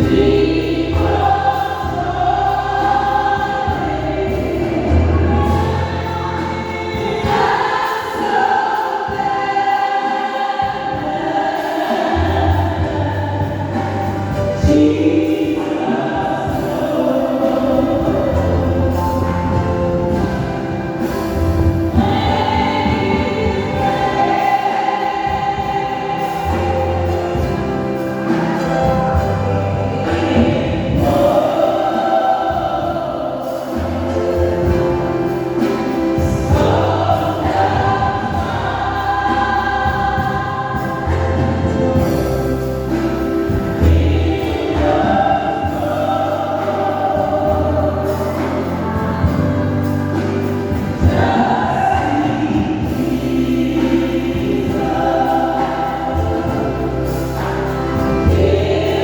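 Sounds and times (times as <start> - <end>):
choir singing gospel: 0.0 - 59.0
instrumental accompaniment: 0.0 - 59.0
steady bass line: 16.5 - 59.0.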